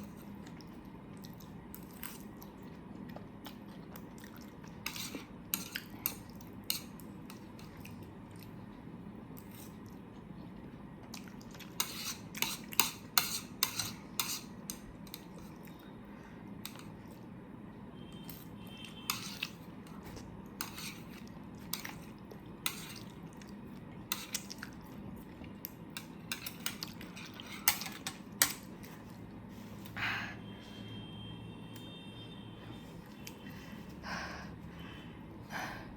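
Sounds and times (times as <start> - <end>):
utensils clinking on dishware: 26.0 - 28.7.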